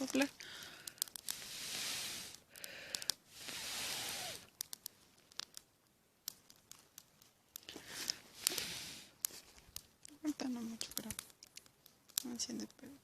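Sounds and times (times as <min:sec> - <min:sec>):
faint clicks: 0:00.0 - 0:01.5, 0:02.2 - 0:03.6, 0:04.2 - 0:13.0
person blowing on embers: 0:00.4 - 0:04.7, 0:07.7 - 0:09.4.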